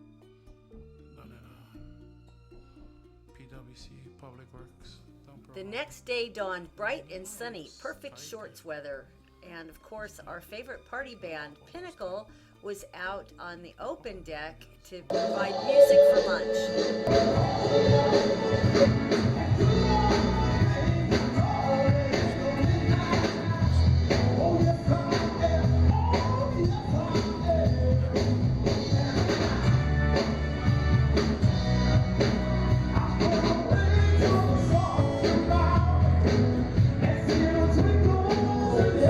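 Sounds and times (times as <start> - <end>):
lead singer singing: 15.1 - 30.3, 32.8 - 39.0
rock and roll band music: 15.1 - 39.0.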